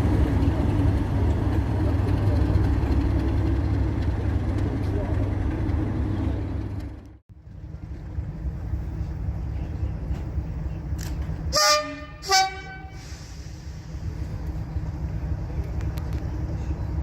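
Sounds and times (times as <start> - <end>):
diesel engine rumble: 0.0 - 17.0
locomotive horn blasts: 11.5 - 13.1.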